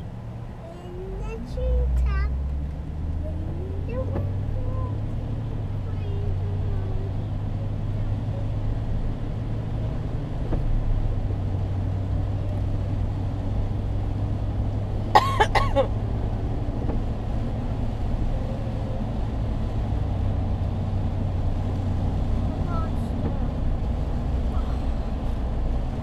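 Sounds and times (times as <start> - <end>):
car engine hum: 0.0 - 26.0.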